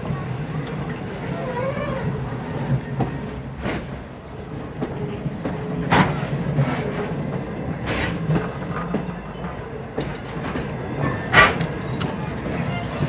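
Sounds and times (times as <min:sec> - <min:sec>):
train wheels rumbling on rail: 0:00.0 - 0:13.0
wheels clacking over rail joints: 0:02.8 - 0:13.0.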